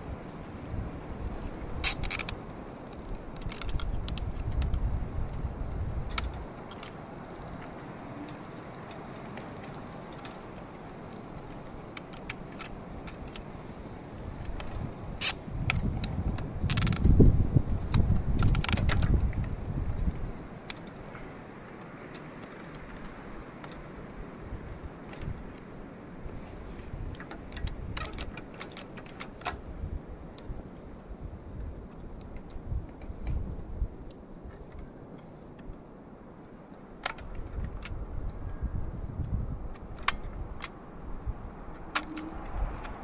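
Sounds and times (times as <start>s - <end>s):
metallic clicks and clanks: 1.8s - 2.4s, 16.7s - 17.1s.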